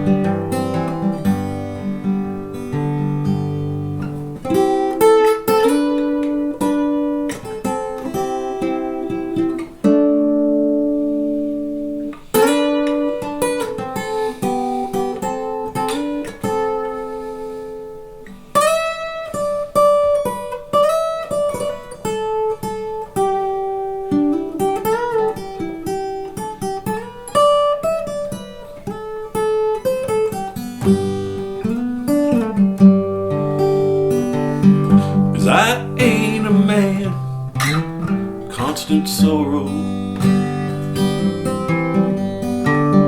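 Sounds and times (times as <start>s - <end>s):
acoustic guitar playing: 0.0s - 43.0s.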